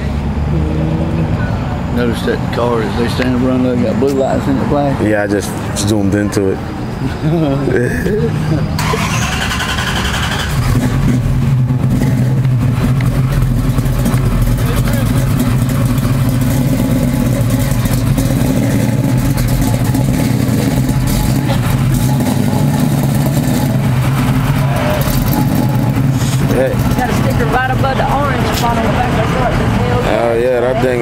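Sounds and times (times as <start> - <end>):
car engine running: 7.7 - 31.0.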